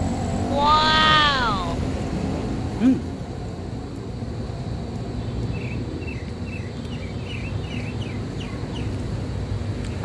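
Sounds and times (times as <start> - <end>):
songbird chirping: 5.2 - 9.0.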